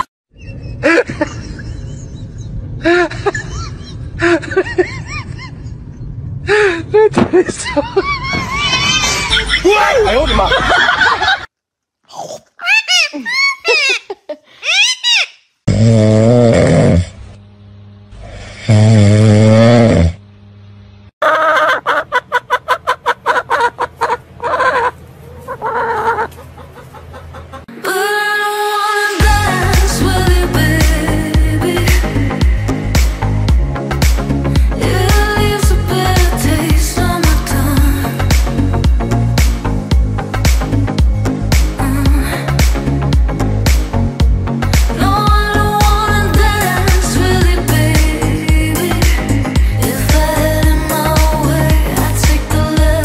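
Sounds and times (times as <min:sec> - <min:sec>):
hen clucking: 0:21.2 - 0:27.7.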